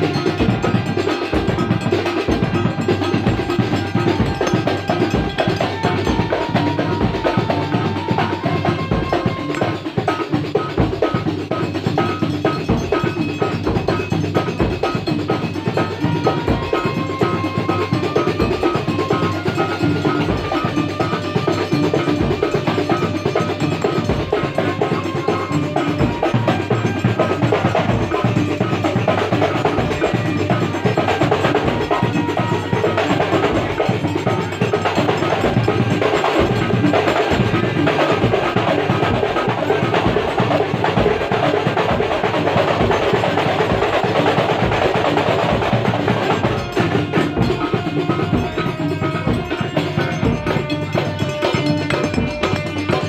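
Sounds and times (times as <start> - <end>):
frame drums fast rhythm: 0.0 - 53.0
low bass drum beats: 44.9 - 53.0.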